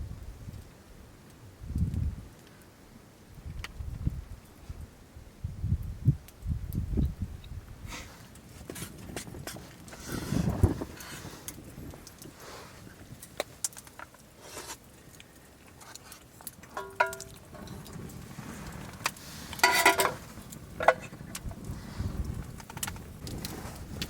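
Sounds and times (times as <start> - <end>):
small metal objects clinking: 16.7 - 17.8.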